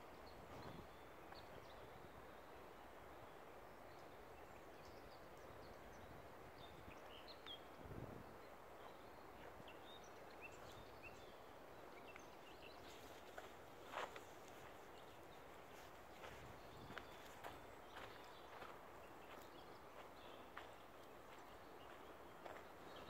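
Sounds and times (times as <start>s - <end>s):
small birds chirping: 0.0s - 23.0s
steady low hiss: 0.0s - 23.0s.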